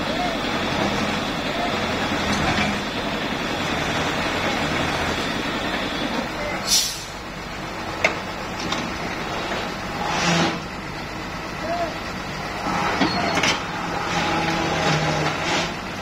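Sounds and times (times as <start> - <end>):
heavy diesel engine running: 0.0 - 16.0
short hiss burst: 6.7 - 7.2.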